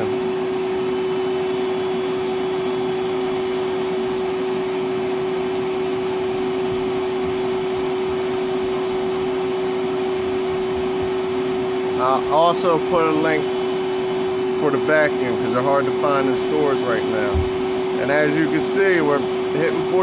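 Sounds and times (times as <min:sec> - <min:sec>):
wet dry vacuum motor whine: 0:00.0 - 0:20.0.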